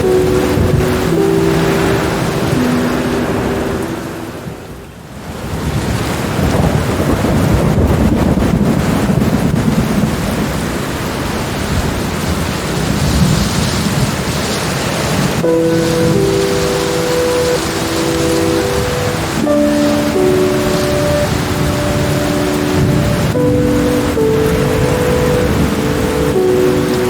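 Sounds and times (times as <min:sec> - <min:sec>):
soft sustained music notes: 0:00.0 - 0:05.0, 0:15.4 - 0:27.0
rolling thunder: 0:00.0 - 0:27.0
steady rain: 0:00.0 - 0:27.0.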